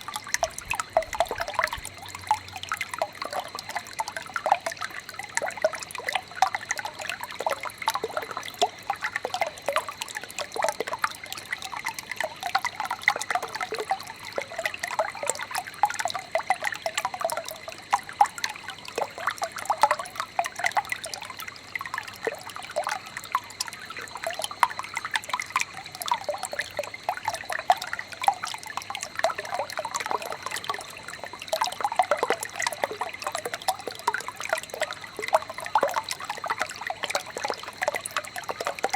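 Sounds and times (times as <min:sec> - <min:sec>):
stream babbling: 0:00.0 - 0:04.3.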